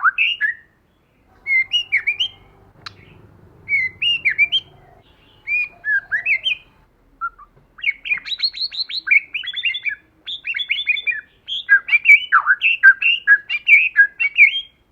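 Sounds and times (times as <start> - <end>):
songbird whistling song: 1.3 - 14.8.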